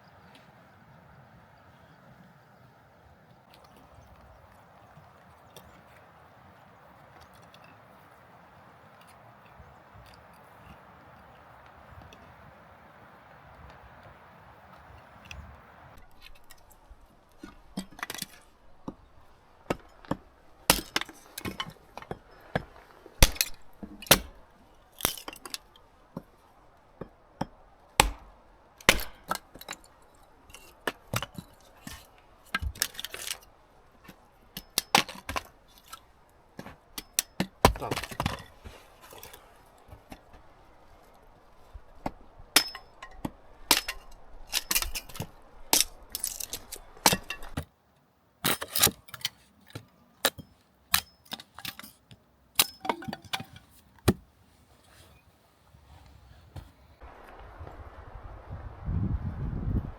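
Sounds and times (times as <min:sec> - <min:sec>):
sharp knocks and clinks: 0:42.6 - 0:47.6, 0:50.3 - 0:53.7.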